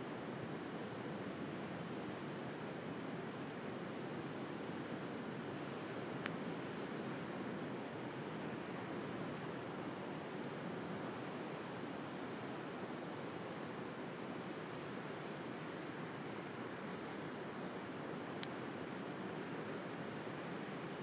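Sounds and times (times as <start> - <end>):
bonfire crackling and popping: 0.1 - 7.7, 17.4 - 20.7.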